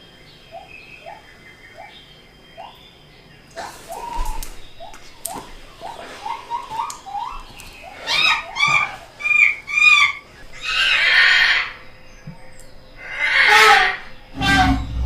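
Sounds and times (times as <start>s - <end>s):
loud pitched bird calls: 0.0s - 15.0s
harsh animal screech: 8.0s - 11.8s, 13.0s - 15.0s.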